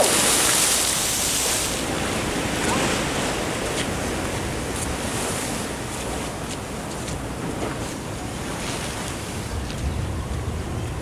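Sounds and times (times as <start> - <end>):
ocean surf breaking: 0.0 - 5.7.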